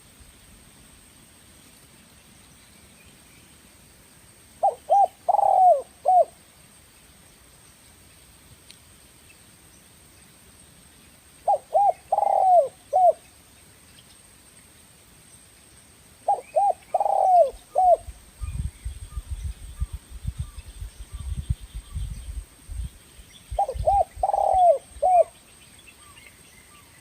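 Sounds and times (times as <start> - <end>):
dove cooing: 4.6 - 6.4, 11.4 - 13.2, 16.2 - 18.1, 23.6 - 25.4.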